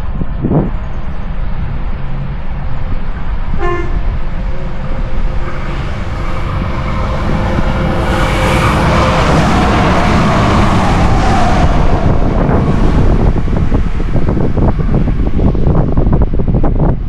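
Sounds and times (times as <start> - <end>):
diesel locomotive rumbling: 0.0 - 17.0
train horn: 3.5 - 10.6.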